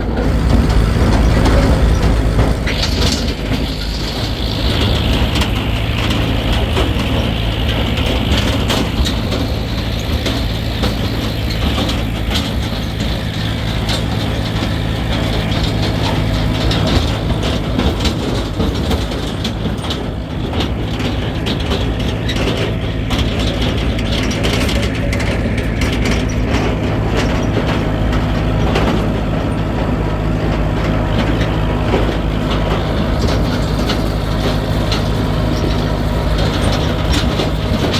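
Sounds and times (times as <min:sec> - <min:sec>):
motor humming: 0:00.0 - 0:20.2.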